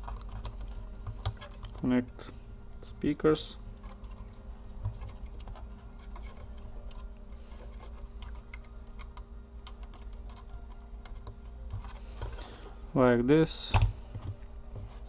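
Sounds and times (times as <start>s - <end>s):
small parts clicking and tapping: 0.0s - 1.9s, 4.8s - 12.5s.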